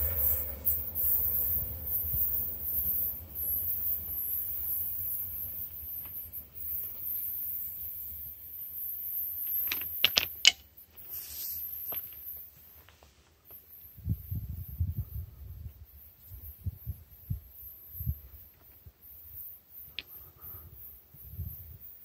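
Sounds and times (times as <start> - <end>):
low rumble of a train: 0.0 - 9.7, 11.0 - 22.0
sharp clicks and rattle: 9.2 - 10.7.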